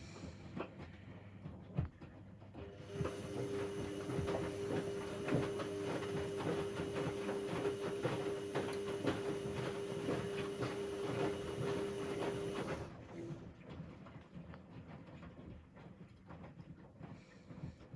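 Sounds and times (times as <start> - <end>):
washing machine motor whine: 2.6 - 13.1.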